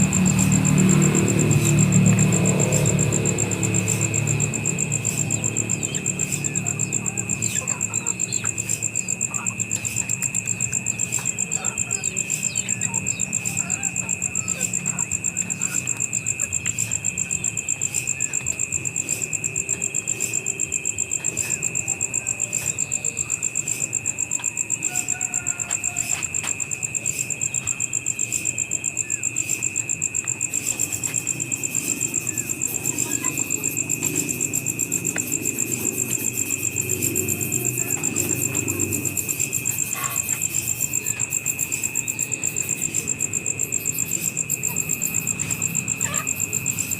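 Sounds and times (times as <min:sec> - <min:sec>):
crickets chirping: 0:00.0 - 0:46.9
high-pitched pulsing insect trill: 0:00.0 - 0:46.9
low steady insect tone: 0:00.0 - 0:46.9.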